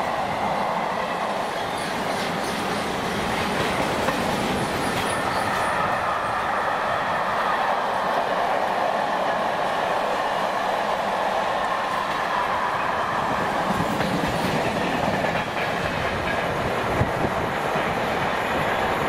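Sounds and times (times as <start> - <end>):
freight train wheels rattling: 11.9 - 19.0.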